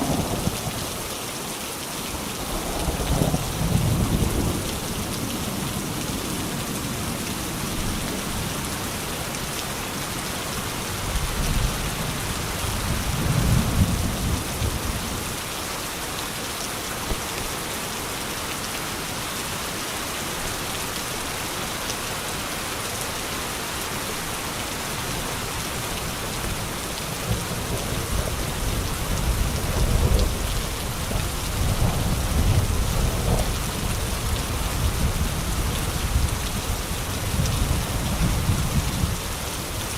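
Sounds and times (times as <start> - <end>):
rolling thunder rumbles: 0.0 - 0.8, 2.8 - 5.1, 26.5 - 39.2
heavy rain falling: 0.0 - 39.9.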